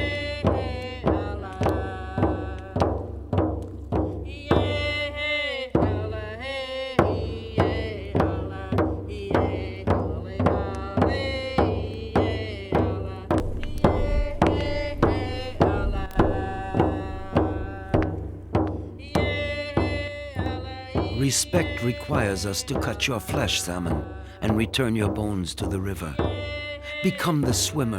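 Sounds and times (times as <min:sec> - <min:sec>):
person chanting: 0:04.4 - 0:27.9
steady drumbeat: 0:07.0 - 0:27.9.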